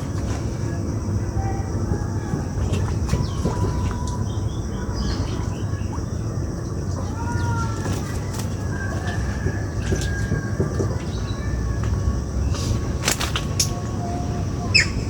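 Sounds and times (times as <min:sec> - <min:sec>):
wind buffeting microphone: 0:00.0 - 0:15.0
whistled bird calls: 0:13.7 - 0:15.0.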